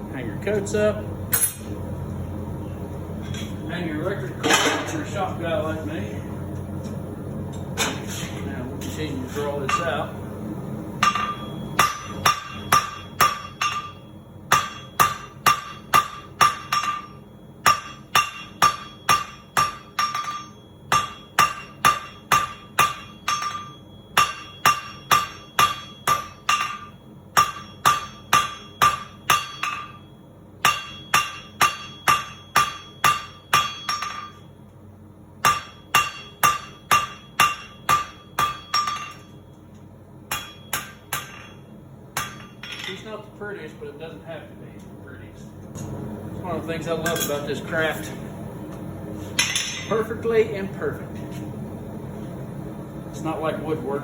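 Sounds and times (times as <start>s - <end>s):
hammer ringing on anvil: 1.3s - 1.7s, 9.6s - 10.1s, 11.0s - 34.5s, 35.4s - 43.0s.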